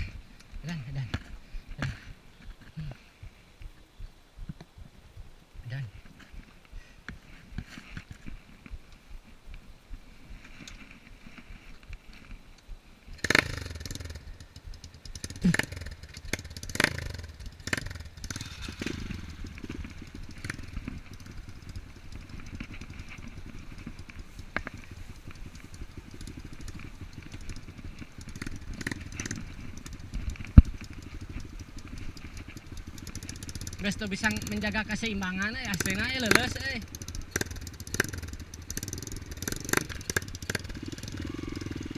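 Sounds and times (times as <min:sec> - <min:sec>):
dirt bike engine revving: 0:13.1 - 0:41.9.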